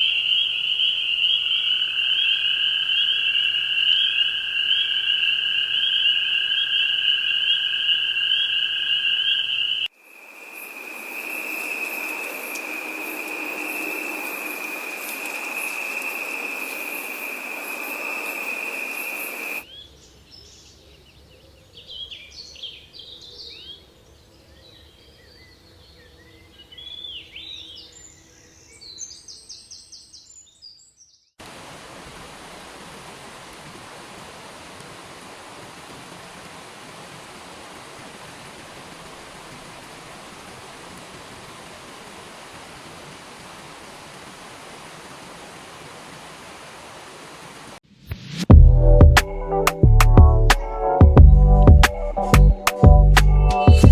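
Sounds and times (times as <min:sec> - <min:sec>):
bird chirps: 0:00.0 - 0:09.9
chorus of trilling calls: 0:00.0 - 0:19.6
rushing stream: 0:09.8 - 0:19.7, 0:31.4 - 0:47.8
hiss: 0:10.0 - 0:19.6.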